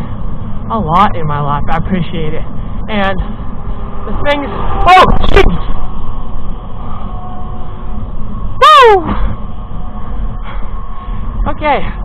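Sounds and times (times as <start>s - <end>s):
faint steady whine: 0.0s - 12.0s
road noise: 0.0s - 12.0s
traffic passing: 0.0s - 12.0s
wind rush: 2.4s - 12.0s.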